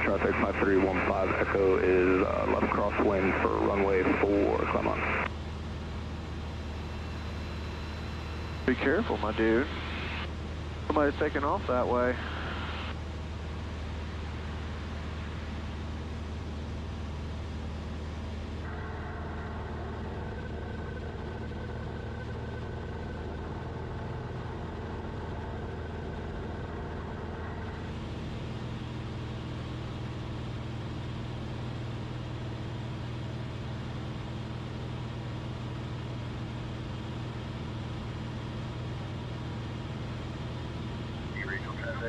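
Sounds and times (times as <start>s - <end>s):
airplane engine and propeller droning: 0.0s - 42.0s.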